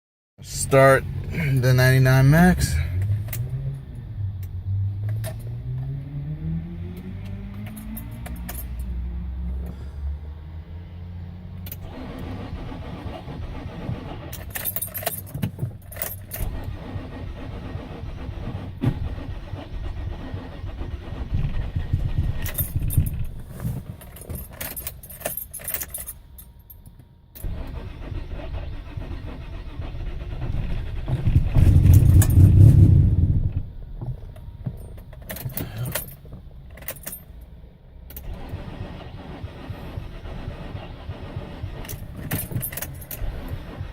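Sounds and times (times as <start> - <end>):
car engine running rough: 6.6 - 25.0, 37.6 - 43.9.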